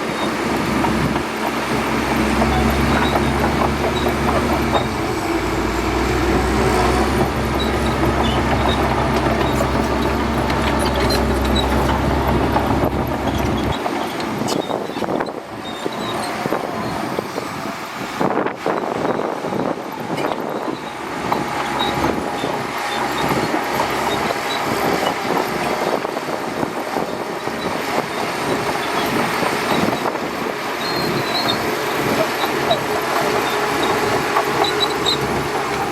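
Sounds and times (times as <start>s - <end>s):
bulldozer diesel engine drone: 0.0s - 35.9s
machine rattling and clanking: 30.9s - 35.9s.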